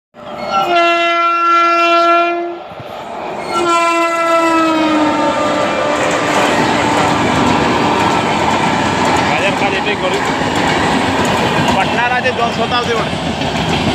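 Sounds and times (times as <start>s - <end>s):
train rushing and rattling past: 0.2s - 13.9s
train horn blasts: 0.4s - 2.8s, 3.5s - 7.6s.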